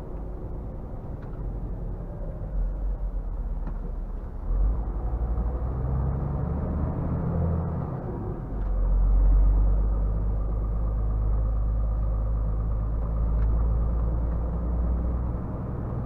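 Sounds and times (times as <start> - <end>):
road noise: 0.0 - 16.0
truck diesel engine rumble: 7.1 - 16.0.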